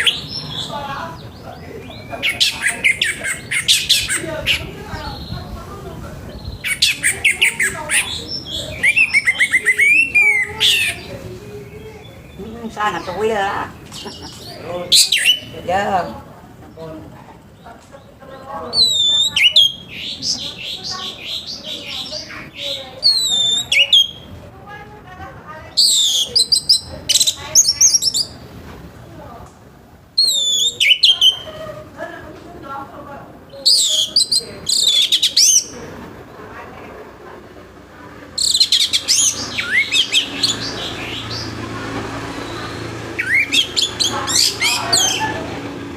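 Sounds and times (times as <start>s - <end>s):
thrush singing whistled phrases: 6.5s - 11.1s, 18.7s - 20.2s, 21.1s - 24.3s, 25.8s - 28.4s, 30.2s - 31.5s, 33.6s - 35.7s, 38.4s - 41.6s, 42.4s - 45.4s
thrush singing: 38.2s - 45.9s.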